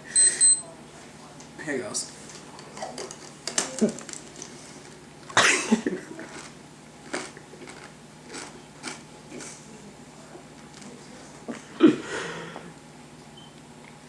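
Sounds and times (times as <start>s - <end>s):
eggshell crunching while chewing: 6.2s - 9.6s.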